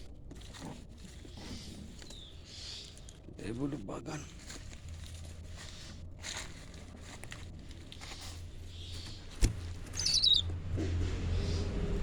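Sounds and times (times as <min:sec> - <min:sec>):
bird chirping call: 0:09.9 - 0:10.5.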